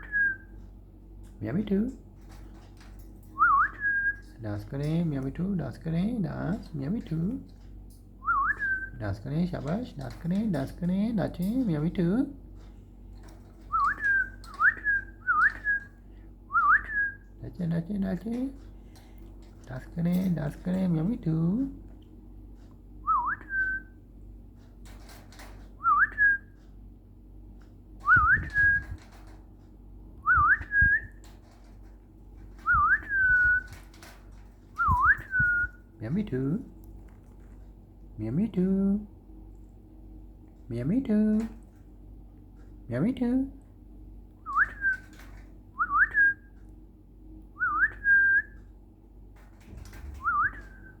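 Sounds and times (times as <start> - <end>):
whistled phrase: 47.6 - 48.6.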